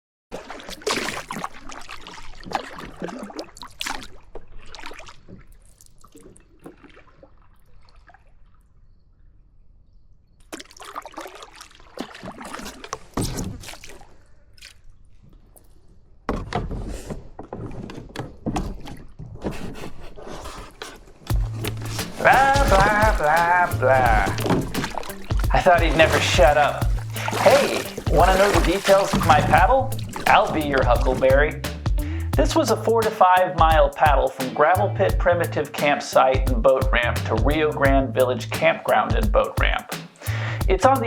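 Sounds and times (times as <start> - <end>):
paddle strokes splashing in water: 0.3 - 8.8, 10.4 - 15.7, 16.3 - 31.5.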